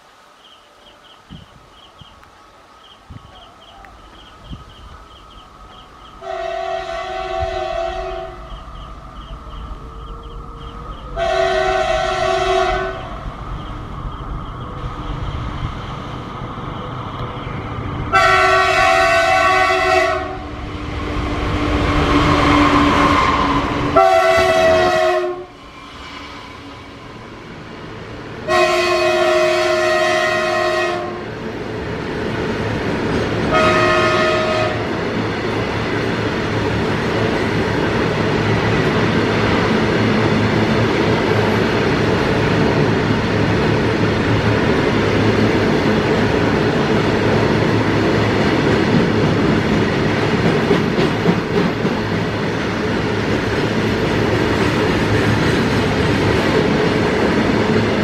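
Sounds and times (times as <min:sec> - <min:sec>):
freight train rumbling past: 0:00.0 - 0:58.0
locomotive horn blasts: 0:06.2 - 0:08.6, 0:11.2 - 0:13.2, 0:18.1 - 0:20.6, 0:22.5 - 0:25.6, 0:28.4 - 0:31.3, 0:33.5 - 0:34.9
wheels clattering on rails: 0:35.0 - 0:58.0.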